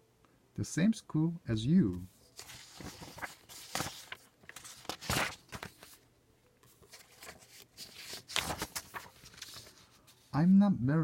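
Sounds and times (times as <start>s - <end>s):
book pages rustling: 1.9s - 10.3s.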